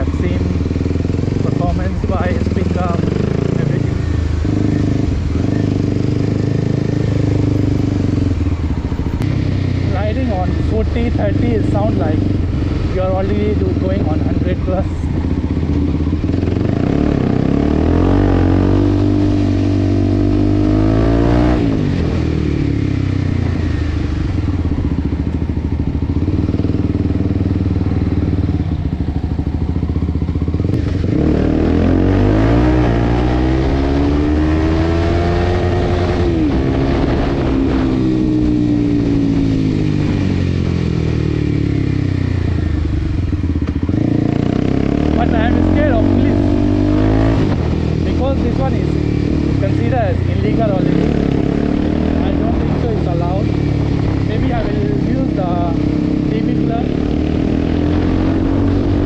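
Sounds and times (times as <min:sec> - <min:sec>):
motorcycle exhaust accelerating: 0:00.0 - 0:59.0.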